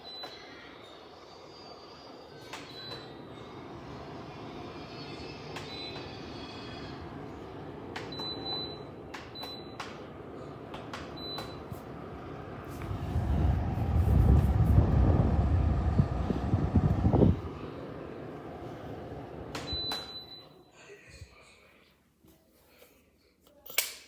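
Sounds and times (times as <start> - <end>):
air conditioner humming: 0.0 - 24.0
loud low rumble: 12.2 - 19.3.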